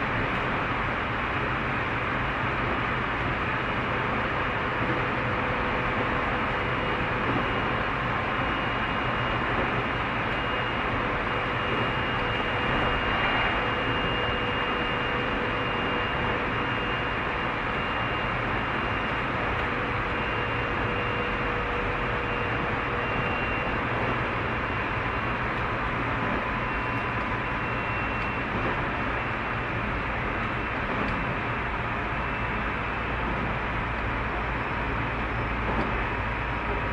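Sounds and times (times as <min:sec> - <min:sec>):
train wheels rumbling on rail: 0:00.0 - 0:36.9
faint whining tones: 0:00.2 - 0:36.9.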